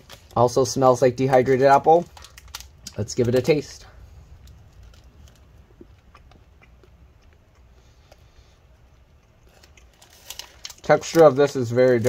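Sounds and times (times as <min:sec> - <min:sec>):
low steady hum: 0:00.0 - 0:12.0
faint chewing clicks: 0:04.4 - 0:10.4.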